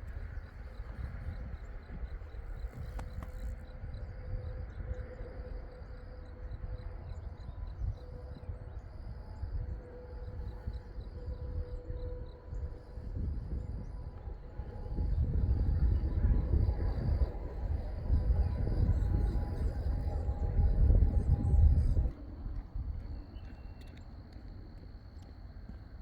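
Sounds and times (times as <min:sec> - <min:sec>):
insects chirping: 0:00.0 - 0:26.0
high pulsing insect trill: 0:00.1 - 0:22.5
steady low rumble: 0:07.2 - 0:26.0.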